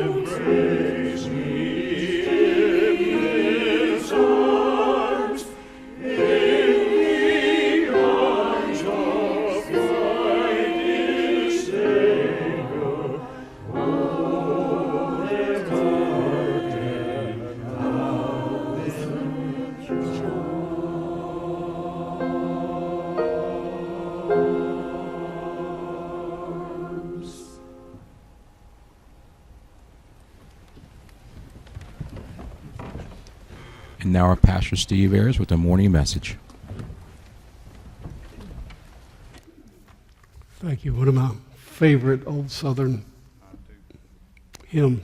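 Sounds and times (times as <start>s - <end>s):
church choir singing a hymn: 0.0s - 28.2s.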